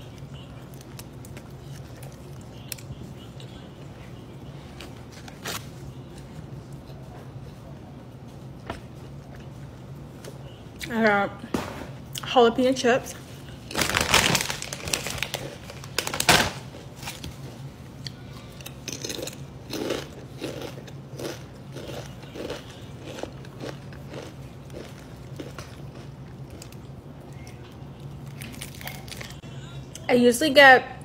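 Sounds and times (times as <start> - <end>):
chip crunching and chewing: 0.0 - 3.6, 18.0 - 29.4.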